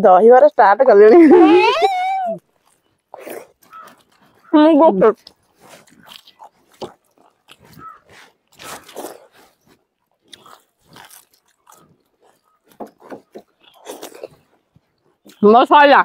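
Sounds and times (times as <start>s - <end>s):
people chewing: 1.2s - 16.0s
crisp shells crunching: 5.2s - 12.5s.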